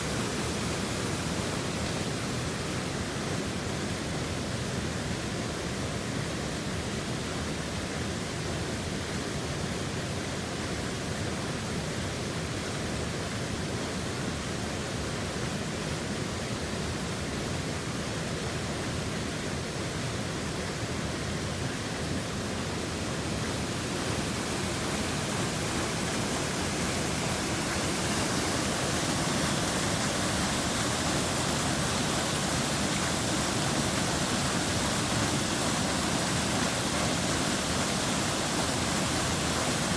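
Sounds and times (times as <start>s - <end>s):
waterfall rushing: 0.0s - 3.1s, 22.3s - 39.9s.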